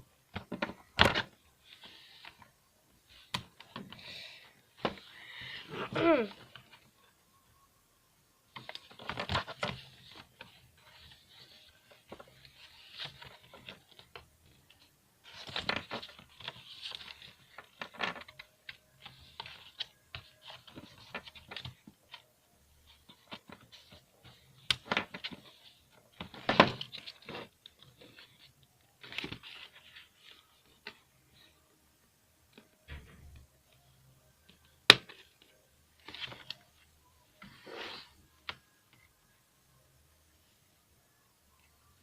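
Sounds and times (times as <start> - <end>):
plastic and cardboard crinkling: 8.5 - 22.3, 22.9 - 31.0.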